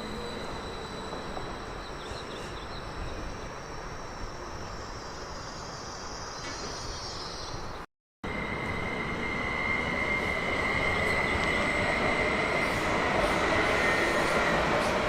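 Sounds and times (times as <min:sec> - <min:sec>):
train rumbling on track: 0:00.0 - 0:15.0
high-pitched squeal: 0:08.3 - 0:15.0.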